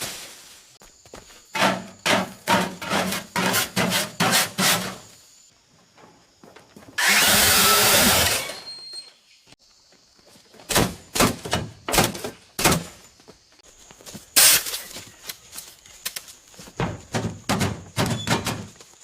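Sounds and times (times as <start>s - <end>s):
knocks of wooden panels: 10.7s - 12.9s, 16.8s - 18.8s.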